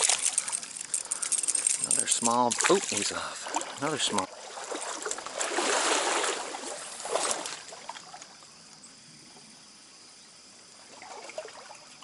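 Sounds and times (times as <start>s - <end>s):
running water rushing: 0.0s - 8.3s
stream water splashing: 0.0s - 8.4s, 10.8s - 12.0s.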